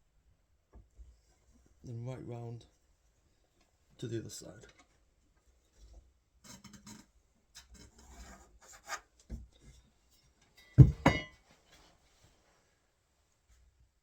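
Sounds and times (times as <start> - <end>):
pencil scraping on wood: 7.6 - 9.1
sharp knocks: 10.8 - 11.3.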